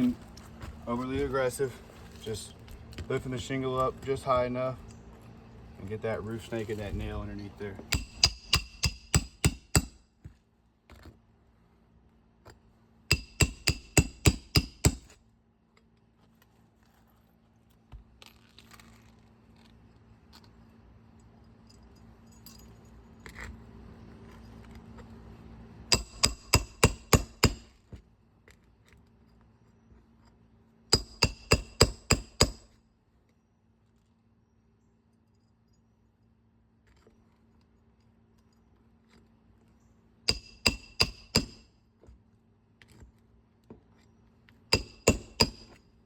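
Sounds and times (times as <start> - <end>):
hammer striking metal: 7.9 - 10.0, 13.1 - 15.1, 25.9 - 27.6, 31.0 - 32.6, 40.3 - 41.6, 44.8 - 45.8.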